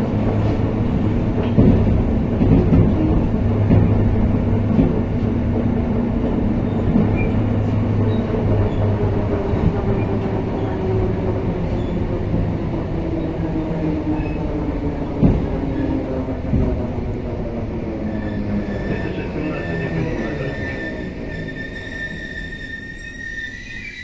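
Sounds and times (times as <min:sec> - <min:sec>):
train wheels rumbling on track: 0:00.0 - 0:24.0
knock: 0:01.4 - 0:04.1, 0:15.2 - 0:15.8.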